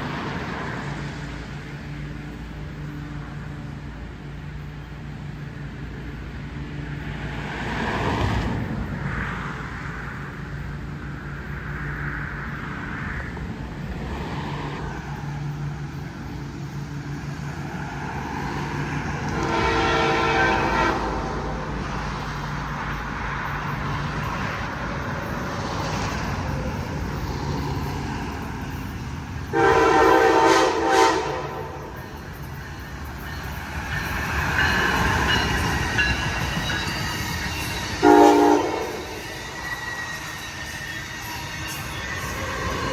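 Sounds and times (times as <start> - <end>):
train rumbling: 0.0 - 42.9
train horn blasts: 19.2 - 21.7, 29.5 - 32.1, 37.8 - 41.9.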